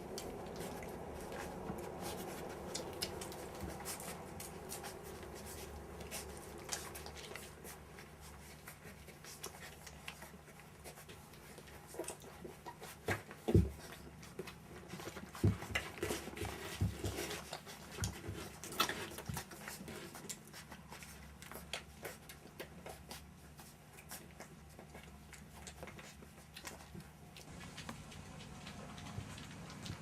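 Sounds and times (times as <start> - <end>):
puppies scuffling and scrabbling: 0.0 - 30.0.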